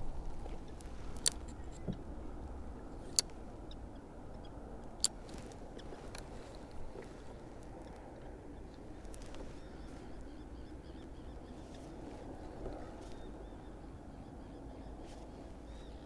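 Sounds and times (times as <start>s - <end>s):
sharp clicks: 0.7s - 2.0s.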